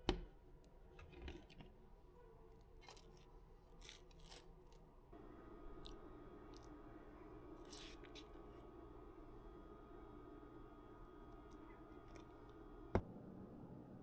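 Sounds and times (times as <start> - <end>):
low steady hum: 4.6 - 14.0.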